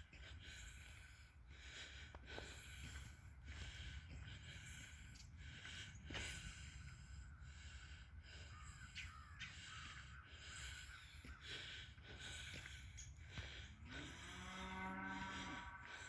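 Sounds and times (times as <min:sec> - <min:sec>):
faint bird calls: 0:07.1 - 0:14.3
crow cawing: 0:08.4 - 0:12.6.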